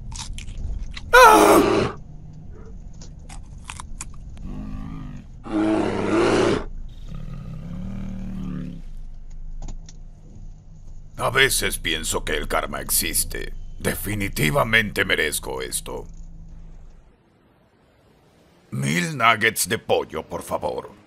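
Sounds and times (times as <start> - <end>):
bear roaring: 1.1 - 2.8, 4.4 - 9.0
bear growling: 1.1 - 3.0, 4.4 - 9.2.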